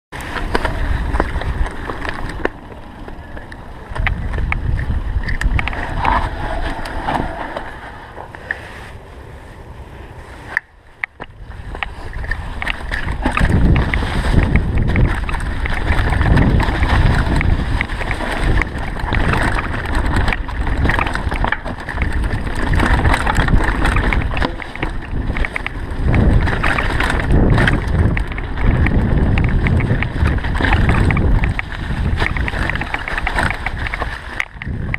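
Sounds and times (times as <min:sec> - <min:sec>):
wind buffeting microphone: 0:00.2 - 0:34.9
small rattles and knocks: 0:11.0 - 0:34.9.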